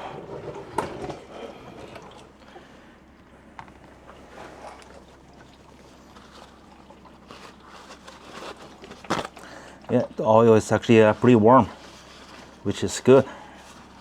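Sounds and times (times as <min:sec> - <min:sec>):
oil trickling into pan: 0:02.0 - 0:12.7.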